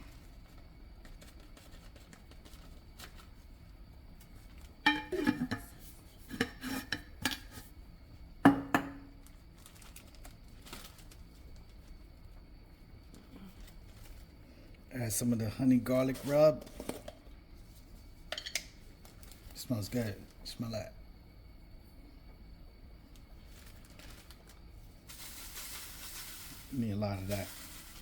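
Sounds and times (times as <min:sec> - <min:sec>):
kitchen containers and utensils clattering: 0:04.9 - 0:07.7.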